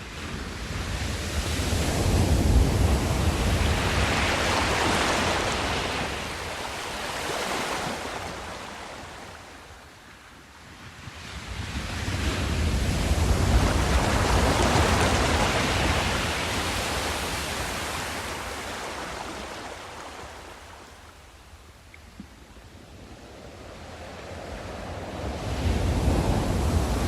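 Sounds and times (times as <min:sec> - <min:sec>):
sea wave washing: 0:01.8 - 0:09.2, 0:12.4 - 0:21.0.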